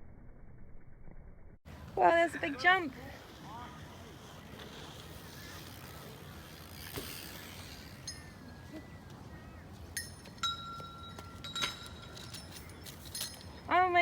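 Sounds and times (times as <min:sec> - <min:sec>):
toy trucks clinking: 0:10.0 - 0:13.7.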